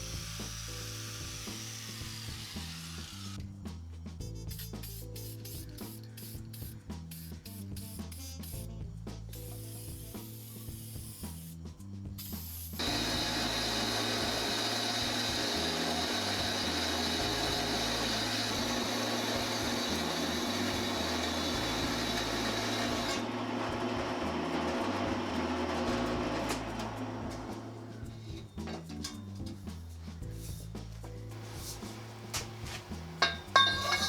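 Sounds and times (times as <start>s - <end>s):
hissing power tool: 0.0s - 3.4s, 12.7s - 27.8s, 31.4s - 34.0s
background music: 0.0s - 34.0s.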